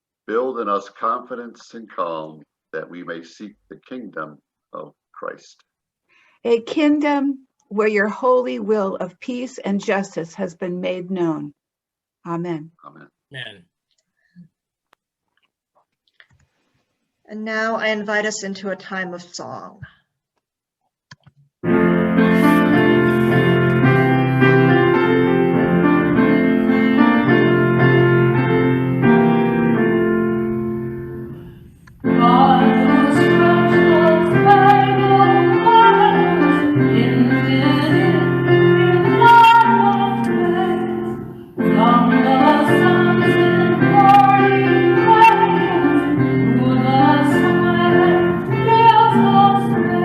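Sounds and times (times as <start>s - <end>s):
piano hymn: 21.6s - 50.0s
person singing: 32.1s - 50.0s.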